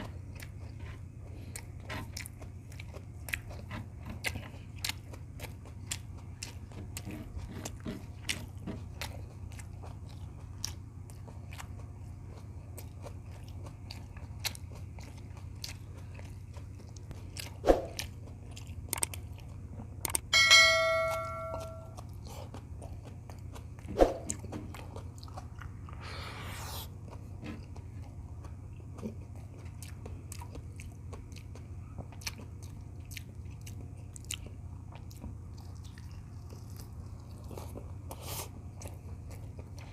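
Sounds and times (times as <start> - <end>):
close chewing and biting: 0.0 - 20.3, 21.6 - 39.9
low steady hum: 0.0 - 39.9
ringing clink: 20.3 - 22.0.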